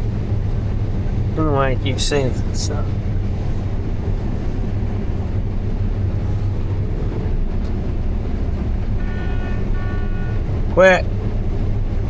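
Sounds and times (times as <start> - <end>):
steady high tone: 0.0 - 3.5
combine harvester drone: 0.0 - 12.0.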